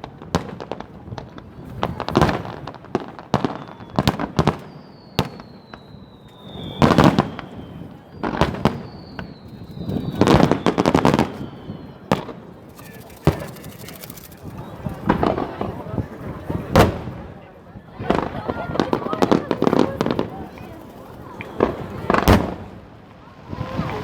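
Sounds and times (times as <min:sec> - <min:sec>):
firework crackle: 0:00.1 - 0:17.3, 0:18.1 - 0:24.0
firework bangs: 0:00.2 - 0:17.4, 0:18.0 - 0:24.0
firework whistle: 0:03.3 - 0:15.7, 0:19.2 - 0:24.0.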